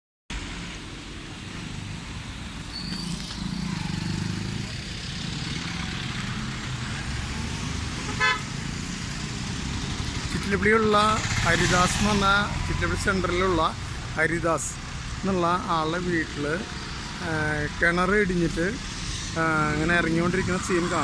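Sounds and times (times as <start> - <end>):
road traffic: 0.3 - 21.0
vehicle horn toot: 8.1 - 8.5.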